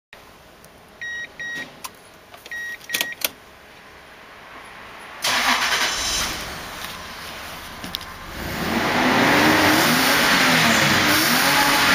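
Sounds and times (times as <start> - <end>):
electronic warning beeps: 1.0 - 1.7, 2.5 - 3.2
ignition switch and relay clicks: 1.4 - 3.4
engine cranking and starting: 5.2 - 6.7.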